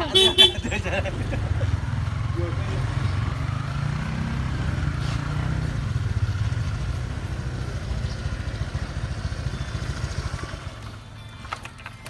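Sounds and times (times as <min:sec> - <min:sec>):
motorbike engine idling: 0:00.0 - 0:03.2, 0:05.8 - 0:12.0.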